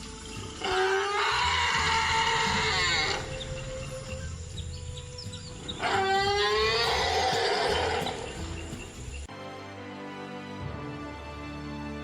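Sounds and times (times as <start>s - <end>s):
animal crying out loudly: 0.6s - 4.2s, 5.6s - 8.3s.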